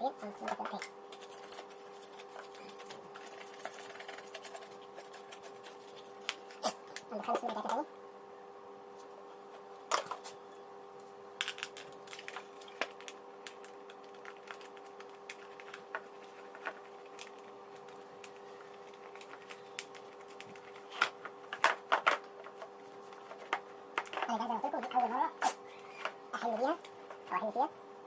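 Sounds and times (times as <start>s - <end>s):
faint hum: 0.0s - 28.0s
plastic parts clicking and knocking: 19.2s - 22.7s, 23.4s - 25.0s.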